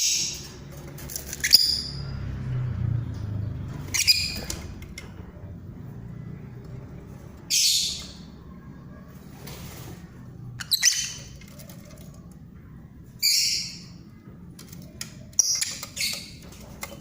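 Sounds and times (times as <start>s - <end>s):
birds squawking: 3.7s - 4.8s, 7.4s - 8.6s, 9.7s - 12.4s.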